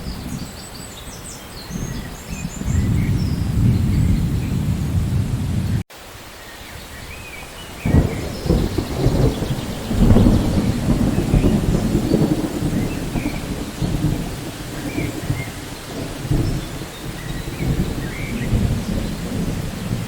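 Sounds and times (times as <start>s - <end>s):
thunder rumbling: 0.0s - 5.8s, 6.9s - 20.0s
steady rain: 0.0s - 20.0s.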